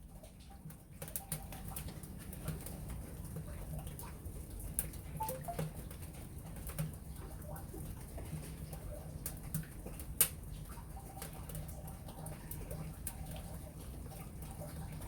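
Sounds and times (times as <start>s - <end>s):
wood fire crackling and popping: 9.2s - 11.9s.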